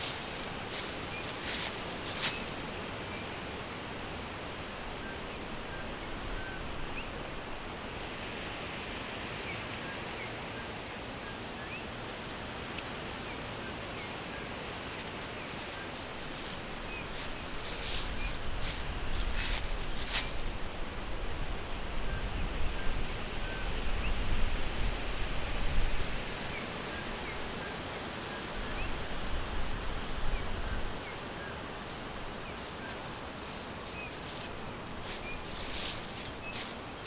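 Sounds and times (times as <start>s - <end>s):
birds chirping: 0.0s - 2.8s, 13.2s - 20.6s, 31.1s - 37.0s
steady rushing hiss: 0.0s - 3.0s, 29.2s - 37.0s.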